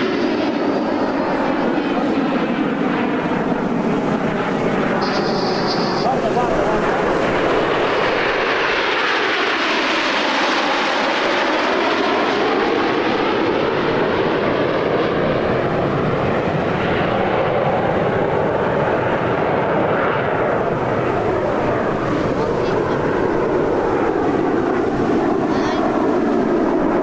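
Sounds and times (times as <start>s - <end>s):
jet aircraft flying past: 0.0s - 27.0s
hollow sweeping tone: 5.0s - 8.5s.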